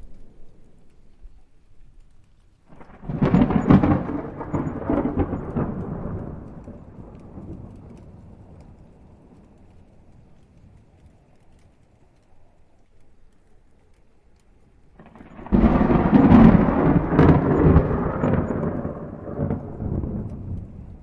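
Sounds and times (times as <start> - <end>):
thunderclap rumbling: 2.7 - 11.8, 14.8 - 21.0.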